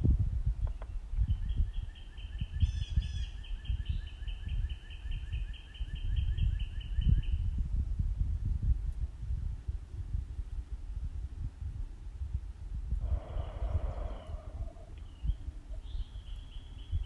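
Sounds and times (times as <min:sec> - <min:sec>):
low uneven rumble: 0:07.7 - 0:17.0.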